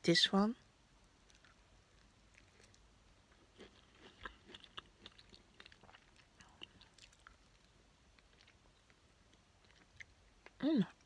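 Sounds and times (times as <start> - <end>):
chewing fruit: 1.2 - 11.0.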